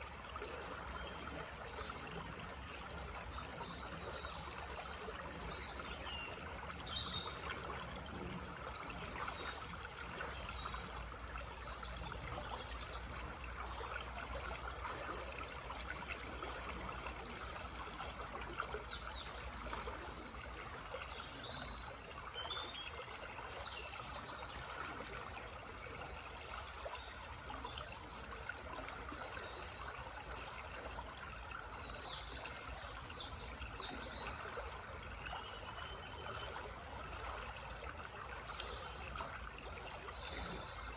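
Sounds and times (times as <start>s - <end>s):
stream babbling over stones: 0.0s - 40.9s.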